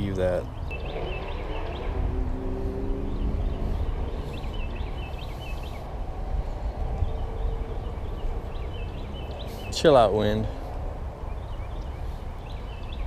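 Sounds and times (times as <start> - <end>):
bird chirping: 0.0 - 13.0
low hum: 0.0 - 13.0
wind buffeting microphone: 0.0 - 13.0.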